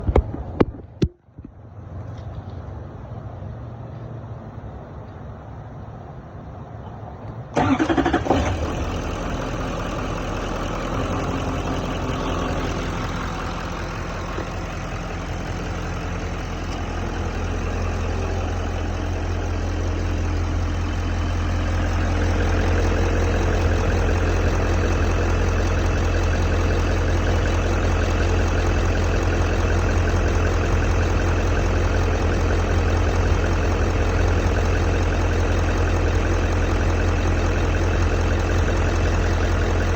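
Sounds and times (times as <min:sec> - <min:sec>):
truck engine starting and idling: 0:06.4 - 0:39.9.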